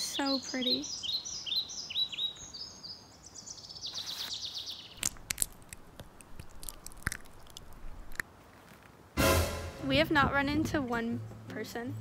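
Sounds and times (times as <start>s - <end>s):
songbird singing a trill: 0.0s - 5.0s
sharp crunches and clicks: 5.0s - 8.9s.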